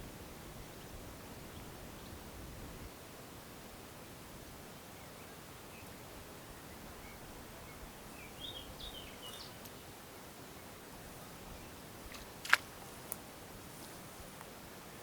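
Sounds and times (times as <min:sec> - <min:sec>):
small bird chirping: 0:06.6 - 0:09.9.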